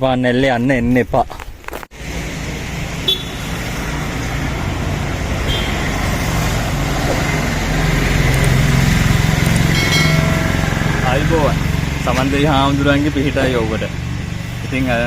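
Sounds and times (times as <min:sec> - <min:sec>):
road and wind noise: 0:00.0 - 0:15.0
motorcycle engine running: 0:02.0 - 0:15.0.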